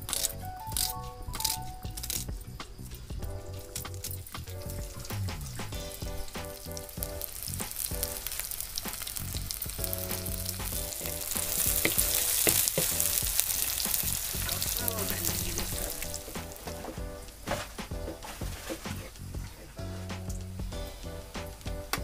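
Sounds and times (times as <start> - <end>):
onions sizzling in hot oil: 5.8 - 16.8
spatula scraping and knocking pan: 8.8 - 20.2.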